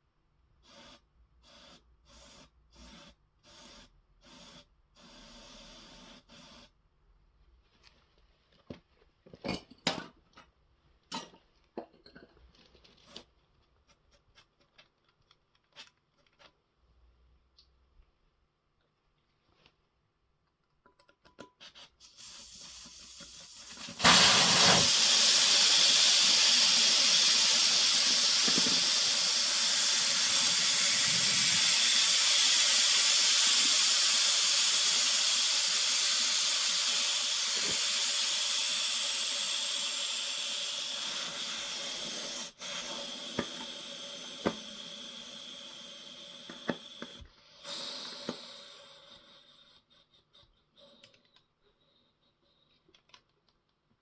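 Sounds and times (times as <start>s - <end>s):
air hissing out of a tyre: 0.6s - 6.7s, 22.0s - 50.1s.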